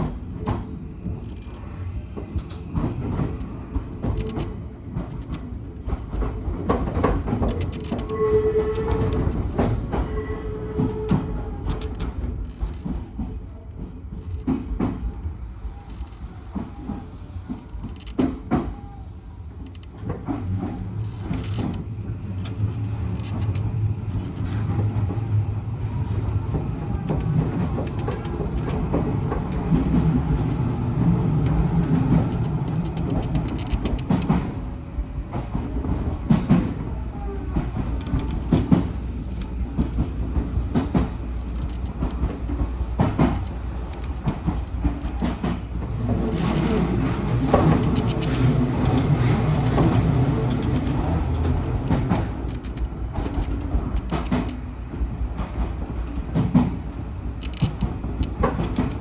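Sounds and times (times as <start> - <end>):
electric train rumbling: 0.0 - 59.0
wheels clacking over rails: 19.6 - 36.9, 37.5 - 59.0.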